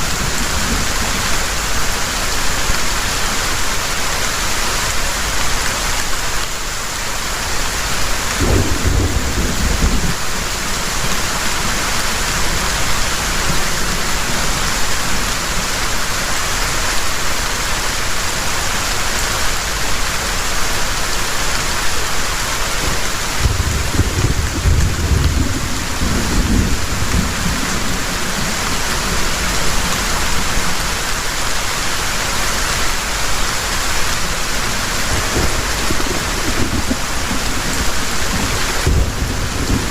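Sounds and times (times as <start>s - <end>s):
heavy rain falling: 0.0s - 39.9s
thunder rolling: 8.4s - 10.2s, 22.8s - 30.3s, 35.0s - 39.9s.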